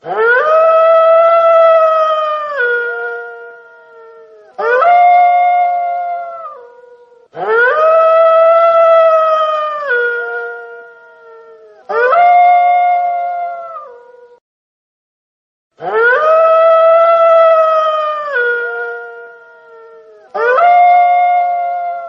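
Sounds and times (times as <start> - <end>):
wolf howling: 0.0 - 14.4, 15.8 - 22.0.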